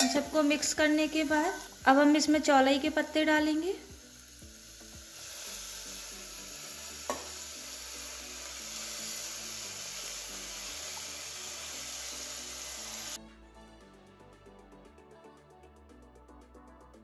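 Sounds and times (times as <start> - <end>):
leaves sizzling in hot oil: 0.0 - 13.2.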